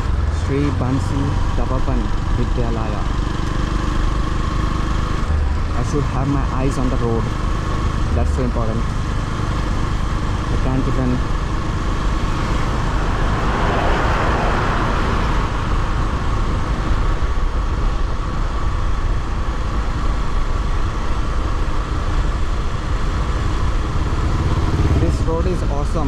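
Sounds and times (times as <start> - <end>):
motorcycle engine running: 0.0 - 26.0
passing traffic: 0.0 - 26.0.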